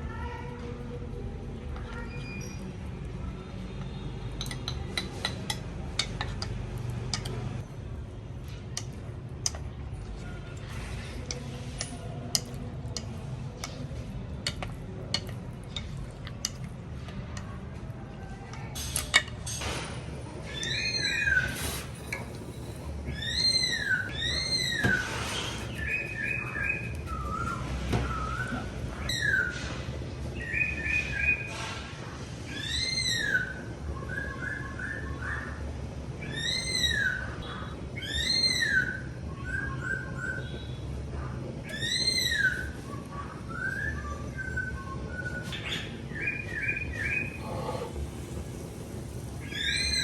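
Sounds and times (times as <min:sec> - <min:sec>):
birds calling: 0:23.1 - 0:29.6, 0:41.6 - 0:48.4.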